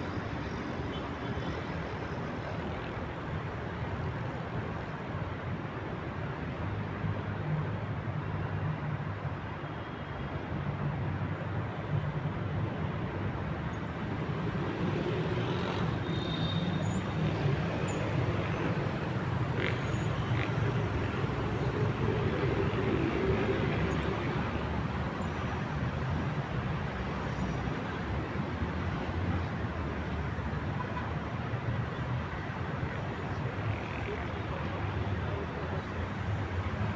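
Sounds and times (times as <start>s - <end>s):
city traffic rumble: 0.0s - 36.9s.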